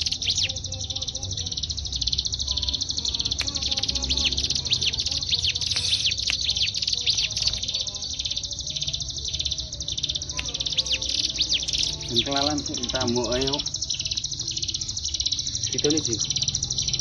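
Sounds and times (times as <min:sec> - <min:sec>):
bird singing buzzy trill: 0:00.0 - 0:17.0.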